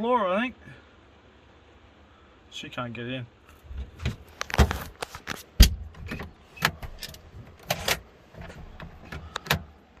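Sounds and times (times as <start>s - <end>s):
knocks and clatters inside a car: 3.7s - 9.8s.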